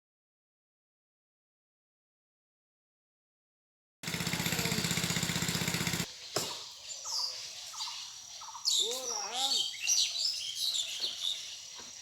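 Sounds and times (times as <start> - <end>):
small engine running: 4.0 - 6.1
faint bird chirps: 6.1 - 12.0.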